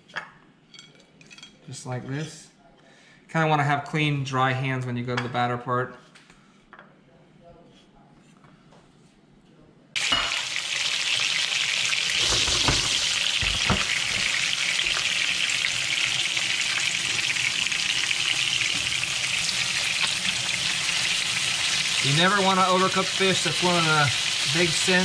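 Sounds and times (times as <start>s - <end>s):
fish frying in hot oil: 10.0s - 25.0s.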